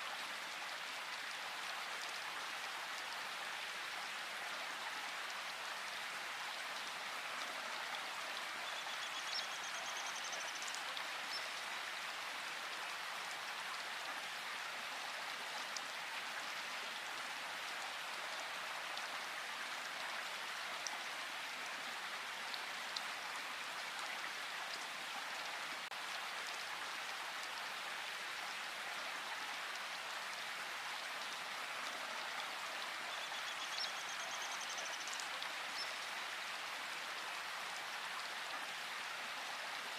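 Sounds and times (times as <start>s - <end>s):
rain falling in a forest: 0.0s - 39.9s
faint bird chirps: 8.6s - 11.6s, 33.1s - 36.0s.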